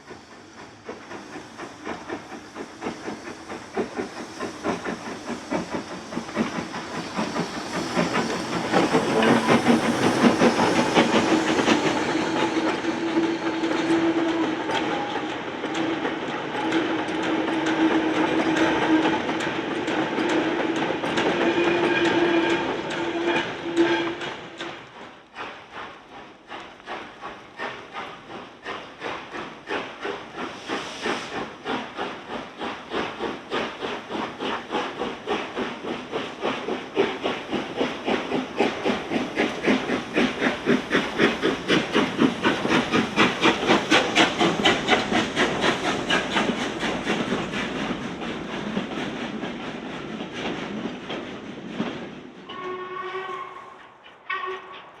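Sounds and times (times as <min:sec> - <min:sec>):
steam hissing: 0:00.0 - 0:55.0
steam locomotive whistle: 0:21.3 - 0:24.4, 0:52.5 - 0:54.9.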